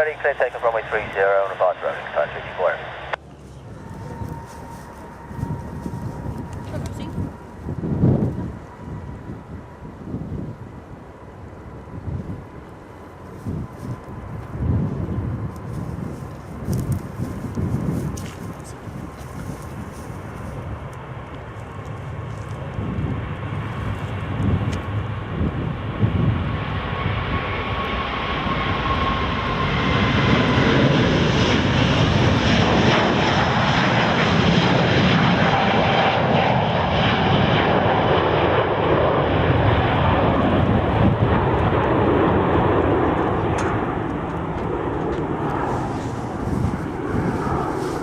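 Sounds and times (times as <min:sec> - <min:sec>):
faint whine: 0:00.0 - 0:22.8
jet engines at takeoff: 0:00.0 - 0:48.0.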